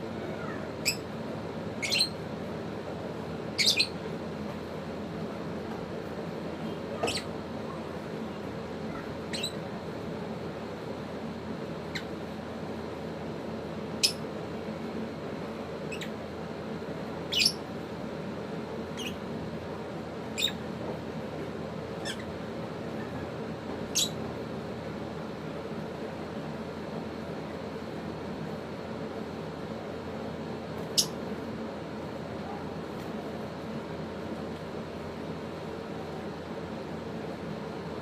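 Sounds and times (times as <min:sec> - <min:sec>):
steady low hum: 0:00.0 - 0:38.0
lovebirds chirping: 0:00.8 - 0:01.1, 0:01.8 - 0:02.3, 0:03.5 - 0:04.0, 0:06.9 - 0:07.3, 0:09.2 - 0:09.6, 0:15.9 - 0:16.2, 0:17.3 - 0:17.6, 0:18.9 - 0:19.3, 0:20.3 - 0:20.6, 0:22.0 - 0:24.2.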